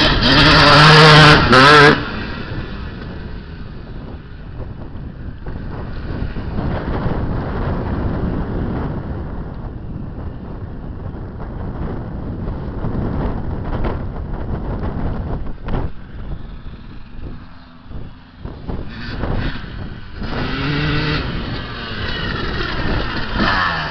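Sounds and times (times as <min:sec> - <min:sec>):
two-stroke motocross engine revving: 0:00.0 - 0:04.0, 0:16.8 - 0:23.9
wind on microphone: 0:00.0 - 0:23.9.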